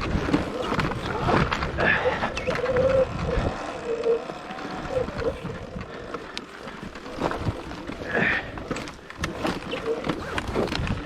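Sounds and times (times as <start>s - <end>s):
wind on microphone: 0.0s - 6.1s
electric motor whine: 0.0s - 10.6s.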